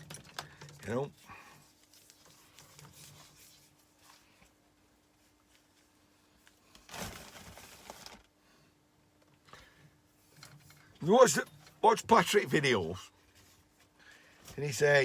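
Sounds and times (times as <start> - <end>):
rustling scrape: 1.6 - 4.4, 6.8 - 8.2.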